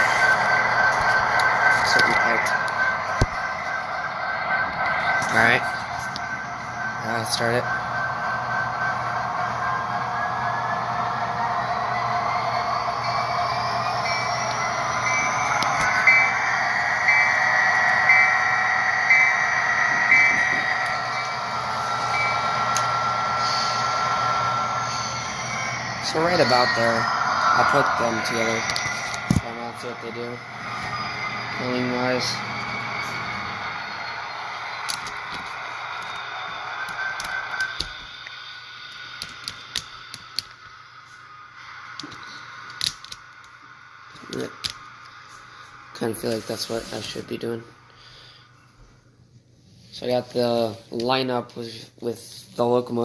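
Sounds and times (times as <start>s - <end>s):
locomotive bell ringing: 0.0s - 38.2s
steady whine: 0.0s - 53.0s
steady hiss: 13.8s - 48.7s.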